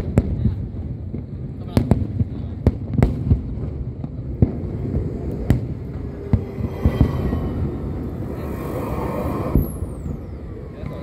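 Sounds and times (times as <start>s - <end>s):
fireworks bangs: 0.0s - 11.0s
low rumble: 3.6s - 11.0s.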